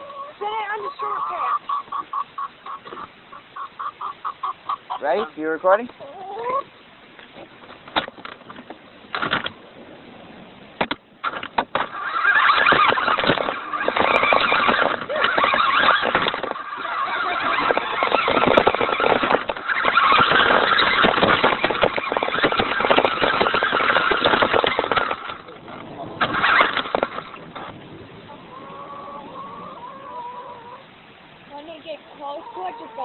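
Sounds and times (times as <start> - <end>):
toy car motor whirring: 11.3 - 25.4, 26.2 - 27.3.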